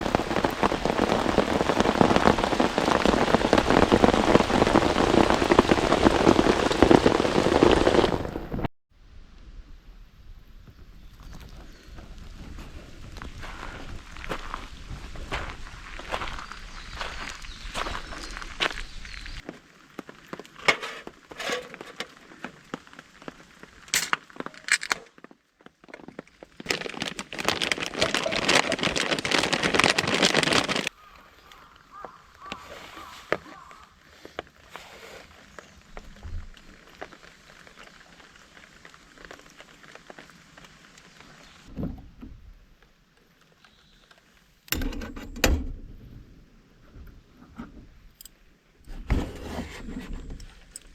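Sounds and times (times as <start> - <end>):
crackling rustle: 0.0 - 8.7, 10.4 - 41.8, 42.6 - 45.3, 46.8 - 50.9
rain pattering on a tarp: 0.0 - 8.7, 11.2 - 41.7.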